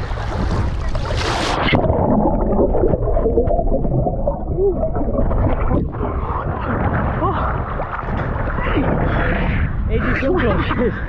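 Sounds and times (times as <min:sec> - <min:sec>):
wind noise on microphone: 0:00.0 - 0:02.1, 0:04.6 - 0:11.0
surf: 0:00.0 - 0:11.0
underwater gurgling and bubbling: 0:00.0 - 0:11.0.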